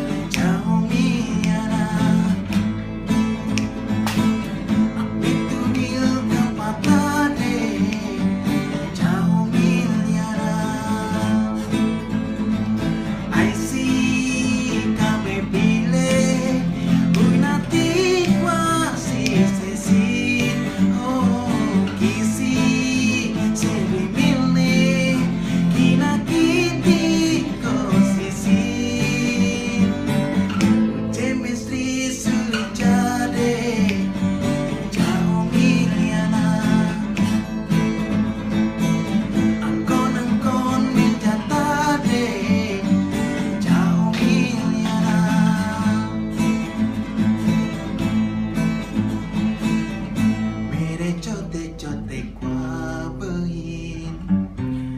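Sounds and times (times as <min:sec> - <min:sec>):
men singing: 0:00.0 - 0:02.5, 0:05.4 - 0:11.6, 0:13.3 - 0:30.4, 0:31.1 - 0:37.2, 0:39.6 - 0:46.3
acoustic guitar strumming: 0:00.0 - 0:54.9.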